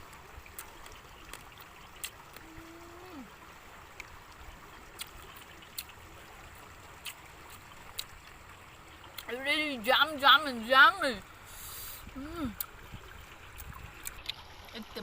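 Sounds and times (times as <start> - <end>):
steady outdoor hiss: 0.0 - 15.0
person humming: 2.4 - 3.3, 12.1 - 12.6
chewing mouth sounds: 5.0 - 6.0, 7.0 - 8.1.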